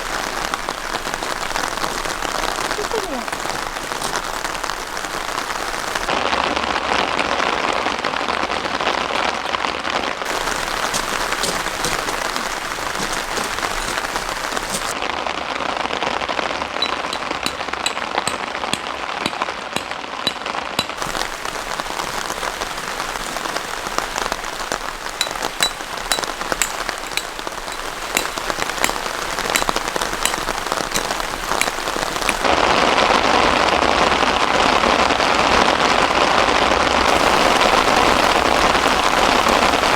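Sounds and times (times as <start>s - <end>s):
raindrops ticking on a surface: 0.0s - 6.2s, 7.4s - 16.0s, 16.6s - 32.8s, 33.4s - 39.9s
heavy rain falling: 0.0s - 39.9s.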